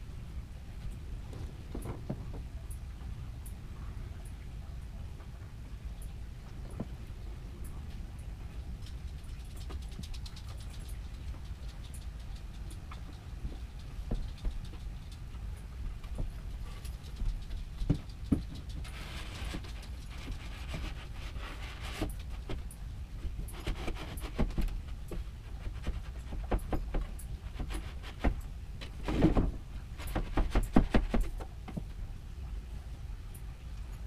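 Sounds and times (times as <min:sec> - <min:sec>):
knocks and clicks of furniture parts: 0:29.0 - 0:31.9.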